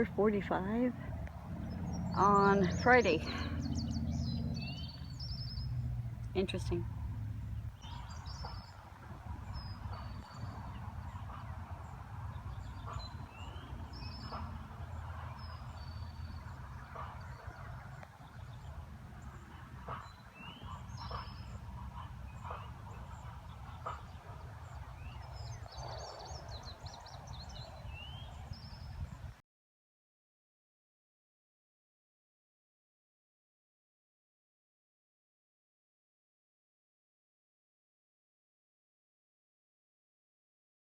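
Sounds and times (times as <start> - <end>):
steady low rumble: 0.0 - 25.7
birds chirping and trilling: 0.0 - 29.2.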